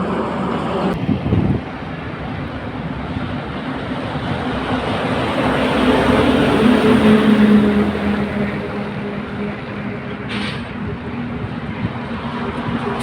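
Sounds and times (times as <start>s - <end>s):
diesel engine droning under load: 0.0s - 13.0s.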